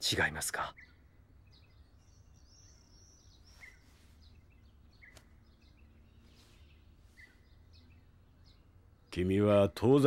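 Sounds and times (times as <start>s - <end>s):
faint bird chirps: 0.0s - 10.0s
faint click: 5.1s - 5.4s.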